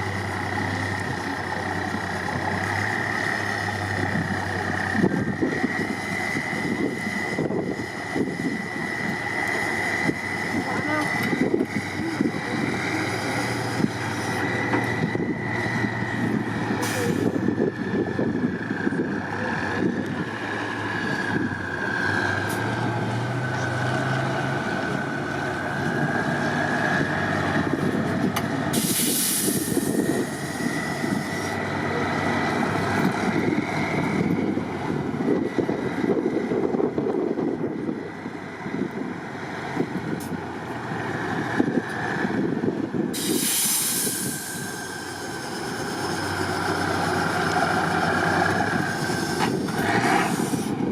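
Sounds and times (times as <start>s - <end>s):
truck engine revving: 0.0s - 50.9s
brief hiss: 43.2s - 44.6s.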